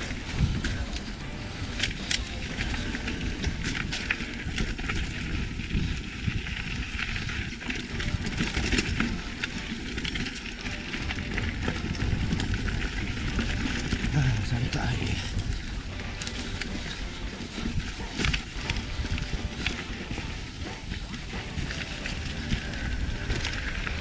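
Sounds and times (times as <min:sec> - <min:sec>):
bike rattling and clicking: 0:00.0 - 0:24.0
bike tyres rumbling on dirt: 0:00.0 - 0:24.0.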